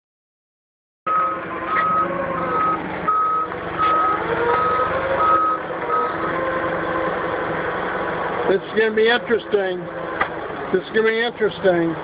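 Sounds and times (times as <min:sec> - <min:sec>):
backup alarm beeping: 0:01.1 - 0:06.1
vehicle engine running: 0:01.1 - 0:12.0.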